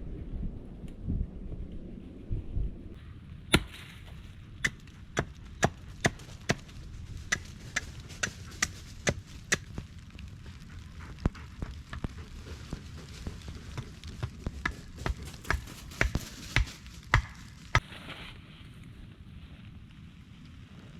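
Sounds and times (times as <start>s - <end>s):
axe chopping wood: 3.5s - 6.7s, 14.6s - 17.8s.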